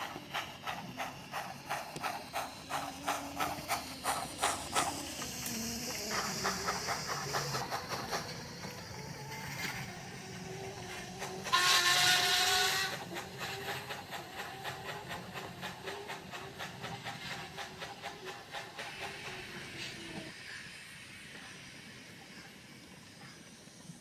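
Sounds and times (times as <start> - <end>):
steam hiss: 0.0 - 24.0
steam locomotive exhaust chuffs: 0.0 - 24.0
loud steam whistle: 11.4 - 13.1.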